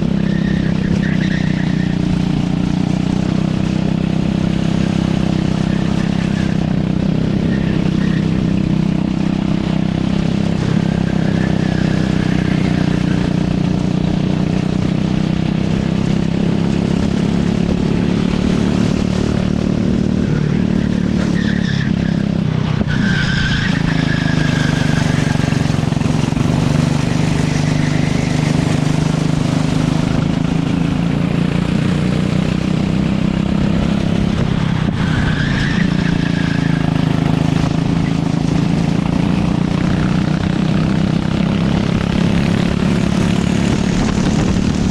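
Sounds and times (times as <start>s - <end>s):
racing kart engine revving: 0.0s - 44.9s
short high squeals: 22.9s - 30.1s, 35.1s - 38.2s.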